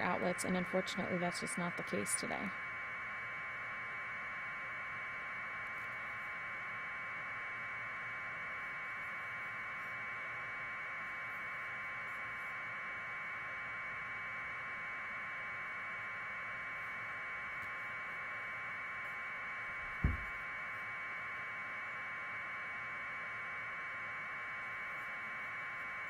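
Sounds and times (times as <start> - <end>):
static hiss: 19.0 - 20.5.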